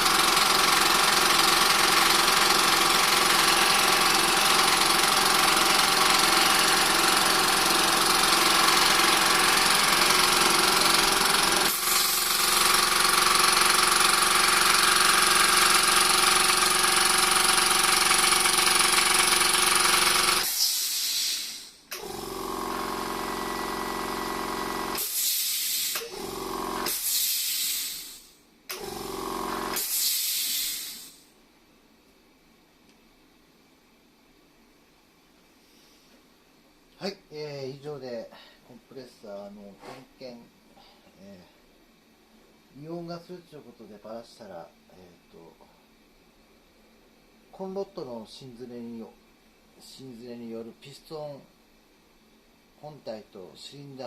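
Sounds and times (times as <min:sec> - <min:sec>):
air compressor running: 0:00.0 - 0:31.3.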